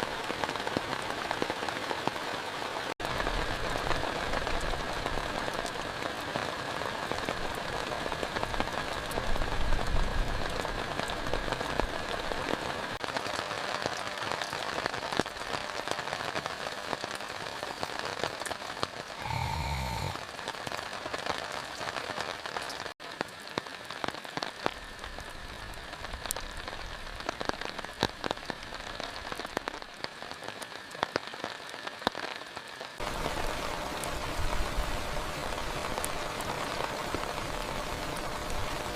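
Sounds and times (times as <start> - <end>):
heavy rain: 0.0 - 38.9
raindrops ticking on surface: 0.0 - 38.9.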